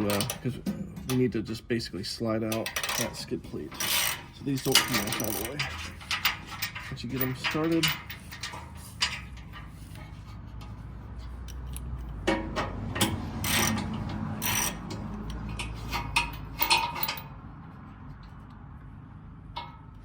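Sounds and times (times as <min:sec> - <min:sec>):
ratchet clicking: 0:02.5 - 0:10.8, 0:11.4 - 0:17.3.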